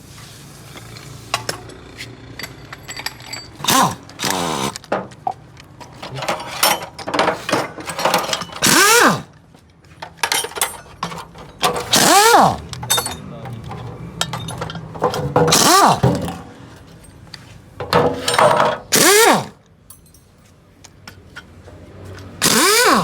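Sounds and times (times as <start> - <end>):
impact wrench bursts: 0.6 - 5.1, 6.1 - 9.4, 10.2 - 16.8, 17.9 - 19.6, 22.4 - 23.0
light metal clinks: 12.7 - 15.1, 19.8 - 21.0.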